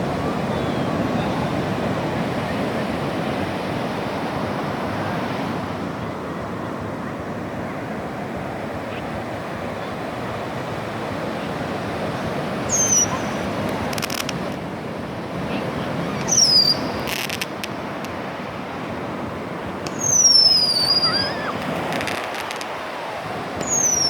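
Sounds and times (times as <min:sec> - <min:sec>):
sea waves washing onto shore: 0:00.0 - 0:24.0
high-pitched chirp: 0:12.7 - 0:13.4, 0:16.2 - 0:17.2, 0:19.9 - 0:21.5, 0:23.6 - 0:24.0.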